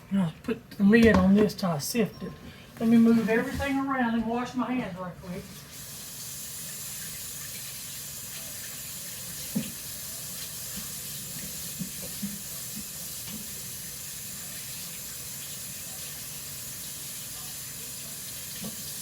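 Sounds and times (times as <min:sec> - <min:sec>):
tap running: 0:09.4 - 0:09.8.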